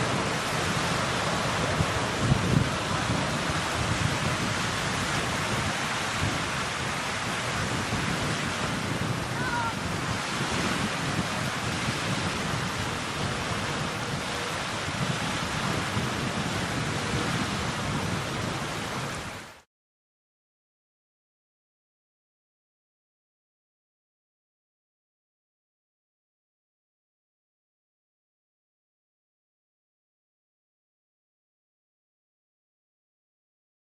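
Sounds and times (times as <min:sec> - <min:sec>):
rushing wind: 0:00.0 - 0:19.6
wind buffeting microphone: 0:00.0 - 0:19.6.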